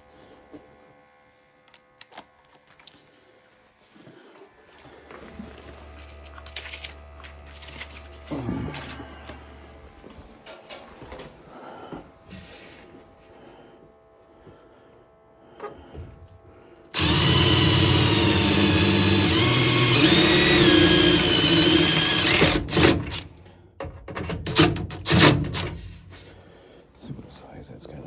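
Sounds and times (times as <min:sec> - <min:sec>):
power drill motor whine: 0:16.8 - 0:23.3, 0:24.5 - 0:25.7.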